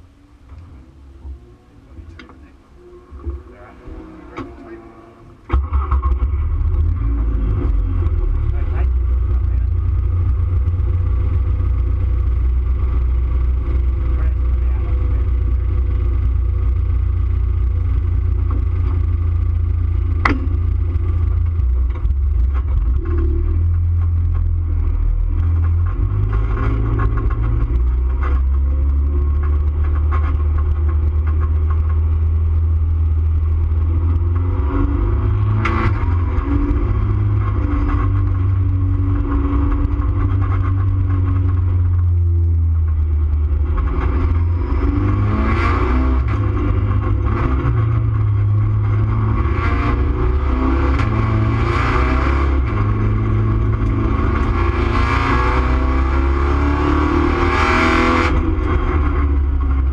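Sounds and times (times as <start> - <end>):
race car engine rumbling: 0.0 - 59.9
sharp knocks: 20.2 - 20.8.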